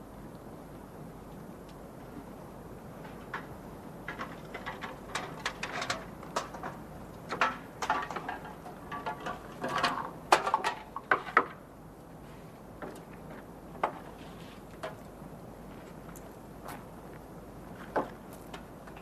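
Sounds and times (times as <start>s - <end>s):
objects clattering and clicking: 4.1s - 11.6s.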